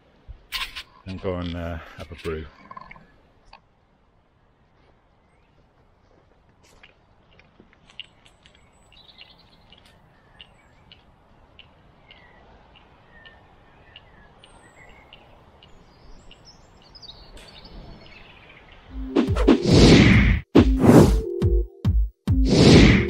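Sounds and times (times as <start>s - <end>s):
birds chirping and whistling: 12.0s - 19.6s.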